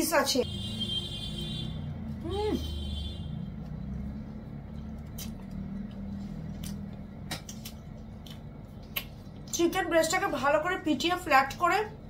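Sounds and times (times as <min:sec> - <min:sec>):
low background hum: 0:00.0 - 0:12.0
crisp chewing crunches: 0:04.7 - 0:09.5.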